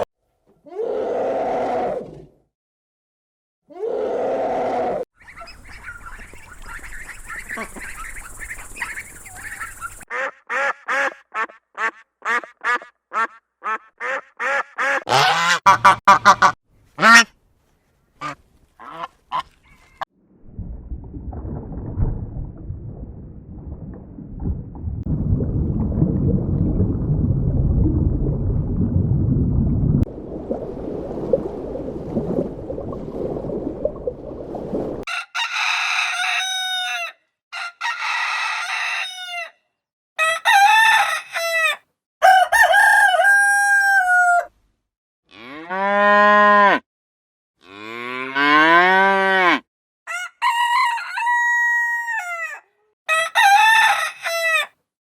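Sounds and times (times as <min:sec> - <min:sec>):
chickens clucking: 0:05.2 - 0:10.0
rooster crowing: 0:35.1 - 0:39.6, 0:40.2 - 0:44.5, 0:50.1 - 0:54.8.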